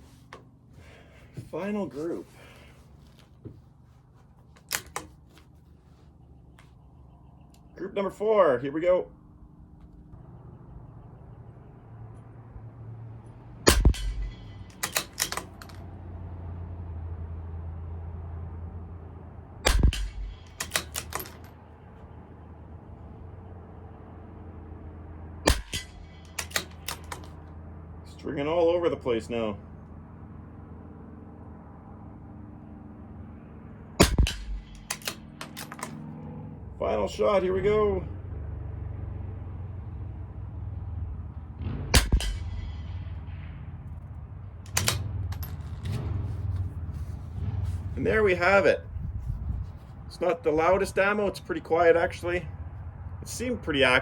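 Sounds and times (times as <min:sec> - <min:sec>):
rifle bolt metallic clicks: 0:04.6 - 0:05.2, 0:13.7 - 0:15.9, 0:19.7 - 0:21.6, 0:25.5 - 0:27.4, 0:34.0 - 0:36.1, 0:44.7 - 0:45.9
steady low hum: 0:09.1 - 0:15.0
rifle shots: 0:13.6 - 0:15.6, 0:19.6 - 0:21.5, 0:25.4 - 0:27.4, 0:34.0 - 0:35.9, 0:41.6 - 0:44.1, 0:44.7 - 0:45.5.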